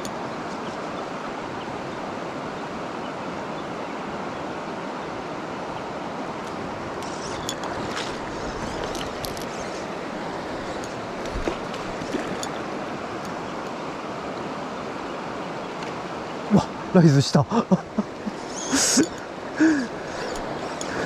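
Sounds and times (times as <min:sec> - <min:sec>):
stream rushing over rocks: 0:00.0 - 0:21.0
faint light ticks: 0:13.2 - 0:13.8.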